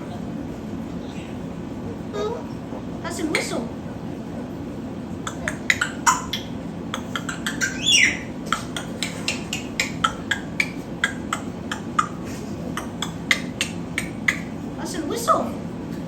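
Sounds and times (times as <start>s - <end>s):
young bird chirping: 5.3s - 12.1s.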